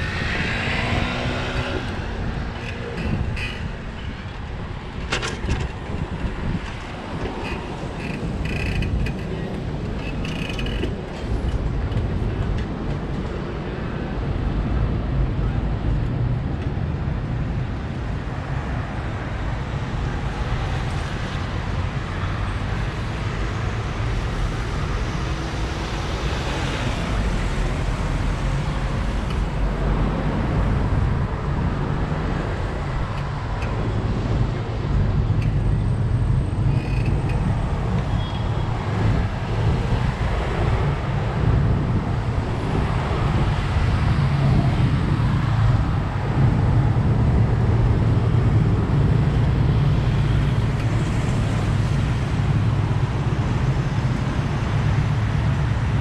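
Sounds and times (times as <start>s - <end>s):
city traffic noise: 0.0s - 56.0s
wind rumbling over microphone: 0.0s - 56.0s.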